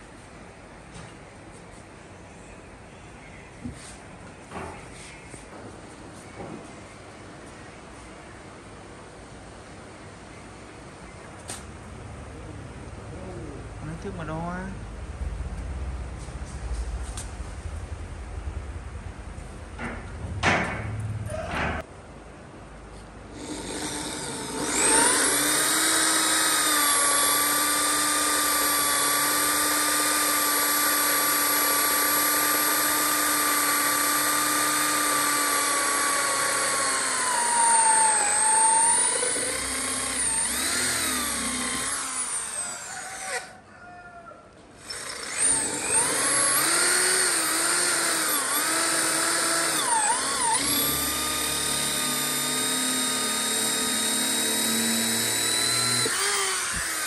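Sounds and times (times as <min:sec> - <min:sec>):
power tool motor whine: 0:23.4 - 0:43.4, 0:44.8 - 0:57.0.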